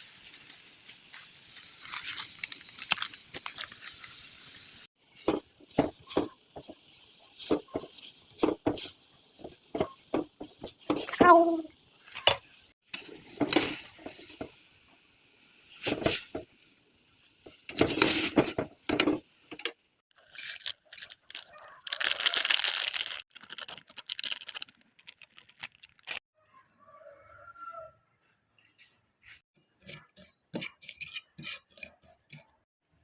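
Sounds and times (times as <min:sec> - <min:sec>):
plastic packaging crinkling and tearing: 0:01.1 - 0:04.2, 0:20.2 - 0:26.2.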